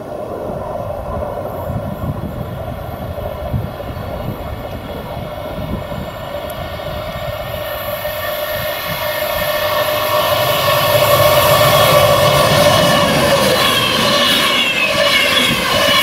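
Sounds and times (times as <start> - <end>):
electric train hum and rumble: 0.0 - 16.0.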